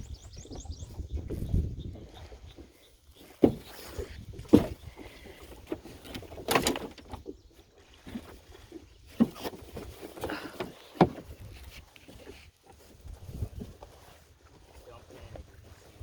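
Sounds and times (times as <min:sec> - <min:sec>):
paddle knocking against canoe: 0:00.3 - 0:12.8
paddle splashing water: 0:00.3 - 0:16.0.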